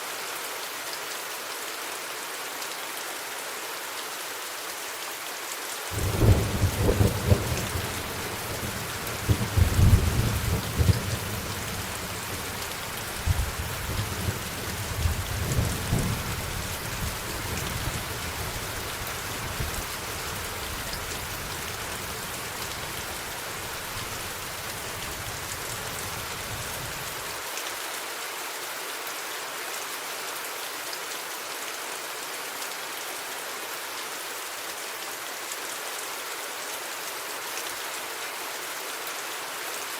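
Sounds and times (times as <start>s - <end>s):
rain hissing: 5.9s - 27.4s
thunder rumbling: 6.0s - 18.6s.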